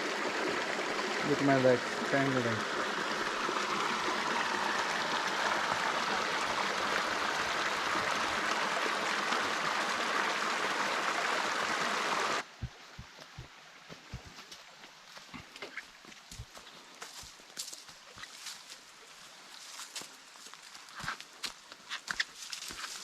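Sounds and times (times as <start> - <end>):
stream water rushing: 0.0 - 15.3
faint low thuds: 12.5 - 14.4.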